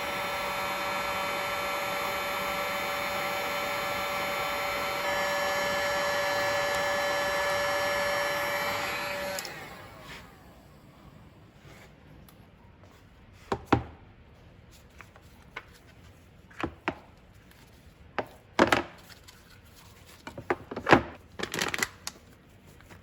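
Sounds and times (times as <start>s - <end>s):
electric motor tool whirring: 0.0s - 10.7s.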